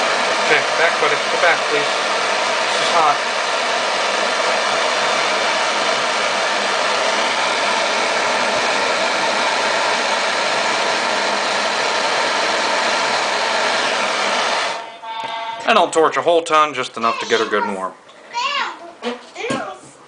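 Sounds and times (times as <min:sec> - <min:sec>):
torch flame hissing: 0:00.0 - 0:14.9.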